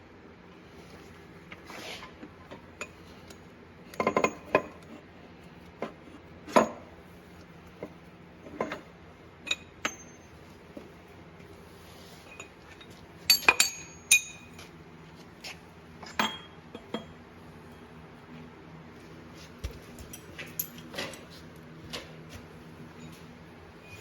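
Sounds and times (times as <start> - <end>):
metal parts and tools clanking: 2.4 - 5.0, 8.5 - 10.4, 12.2 - 14.7, 16.0 - 17.9, 19.8 - 22.2.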